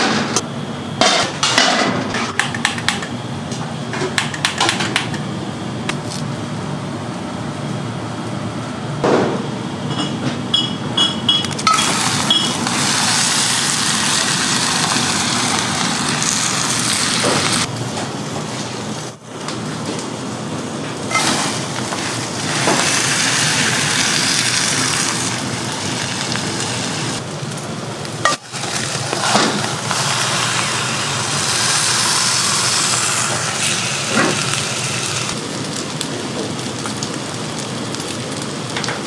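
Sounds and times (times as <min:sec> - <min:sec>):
cooking crackling hiss: 0:11.6 - 0:17.9, 0:18.5 - 0:39.0.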